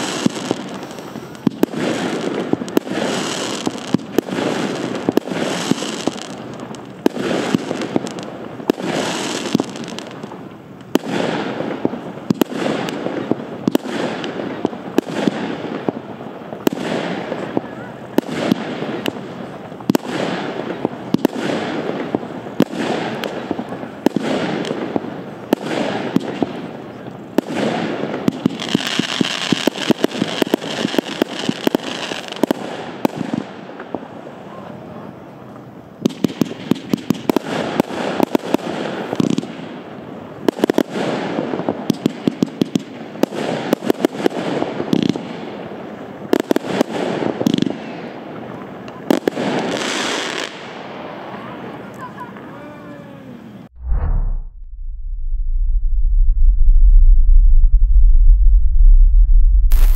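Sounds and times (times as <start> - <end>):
firework bursts with crackling: 0.0 - 52.6
firework launch thumps: 53.7 - 59.0, 59.6 - 59.9.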